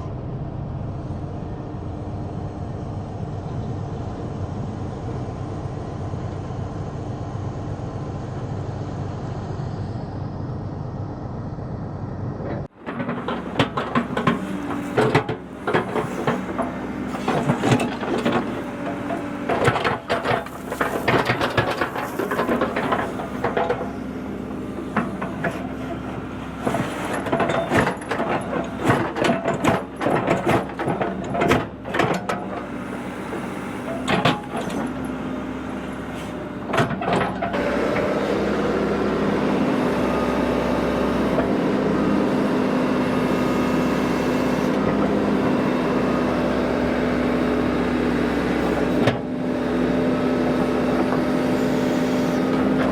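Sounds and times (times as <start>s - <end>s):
earth-moving machine engine: 0.0s - 52.9s
metal clanks and scrapes: 12.5s - 23.9s, 24.8s - 32.7s, 33.4s - 35.2s, 36.1s - 38.1s.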